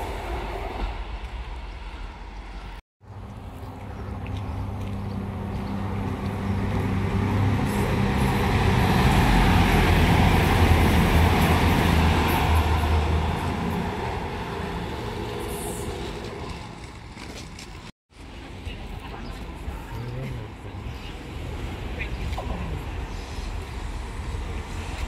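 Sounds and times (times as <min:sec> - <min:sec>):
diesel train engine hum: 0:00.0 - 0:25.0
train wheels on rails: 0:04.8 - 0:19.8.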